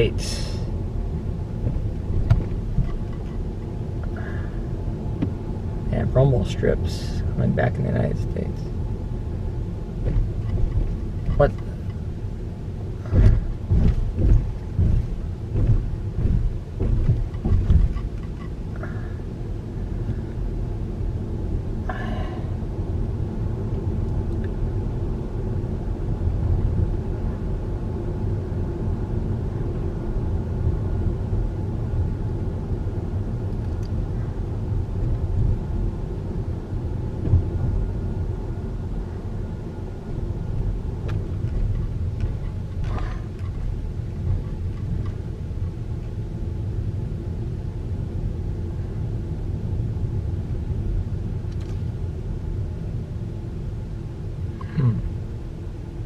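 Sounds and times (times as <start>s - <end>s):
road rumble: 0.0s - 56.0s
tyres thumping over rumble strips: 0.4s - 4.5s, 9.8s - 19.1s, 37.2s - 38.0s, 40.5s - 45.8s.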